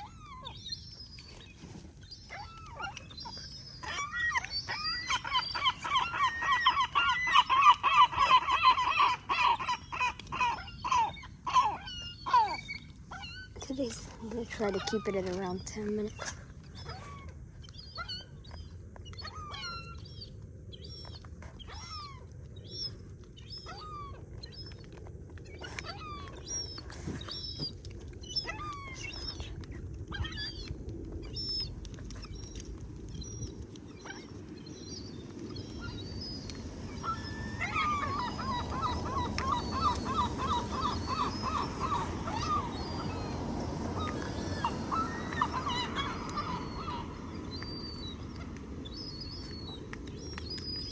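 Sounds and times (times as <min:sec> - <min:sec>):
gull chicks peeping: 0:00.0 - 0:50.9
fast repeated gull calls: 0:37.0 - 0:47.9.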